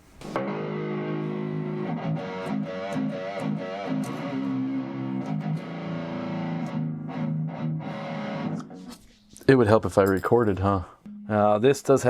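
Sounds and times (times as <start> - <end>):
electric guitar notes: 0.2 - 9.0.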